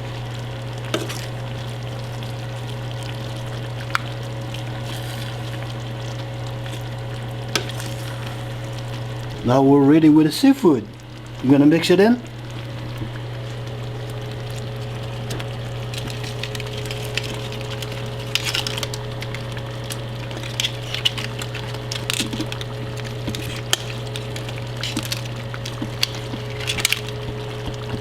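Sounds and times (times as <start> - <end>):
steady low hum: 0.0 - 28.0
utensil scraping a pot: 23.1 - 27.4.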